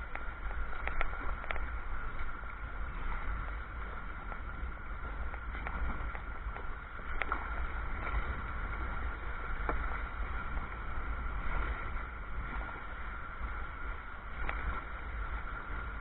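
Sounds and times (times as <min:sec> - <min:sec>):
faint ticks: 0:00.0 - 0:02.4, 0:05.2 - 0:07.6, 0:14.4 - 0:14.9
water splashing against kayak hull: 0:00.0 - 0:16.0
wind rumble on microphone: 0:00.0 - 0:16.0.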